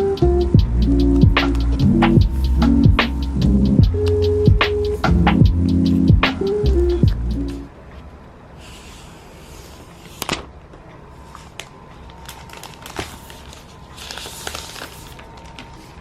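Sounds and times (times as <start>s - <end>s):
low hiss: 0.0s - 12.3s.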